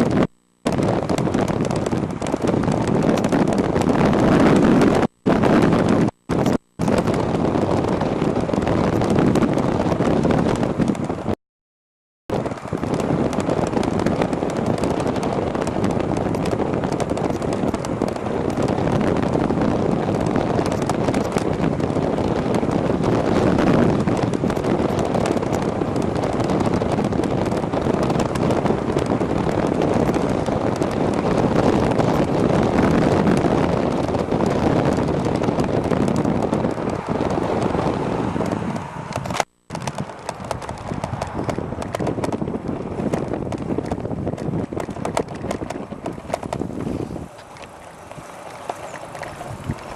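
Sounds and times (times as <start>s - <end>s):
camera rattling and knocking: 0.0s - 11.3s, 12.3s - 49.9s
wind buffeting microphone: 0.0s - 11.4s, 12.3s - 49.9s.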